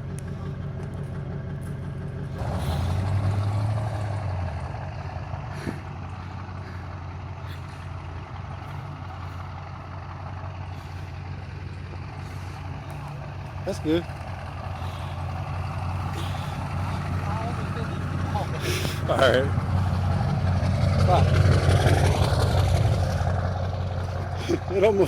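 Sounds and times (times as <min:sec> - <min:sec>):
truck engine revving under load: 0:00.0 - 0:25.0.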